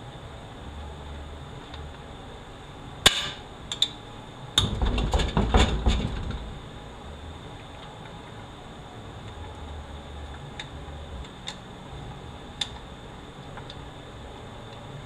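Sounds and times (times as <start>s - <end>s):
metal knocks and clanks: 4.6s - 6.4s.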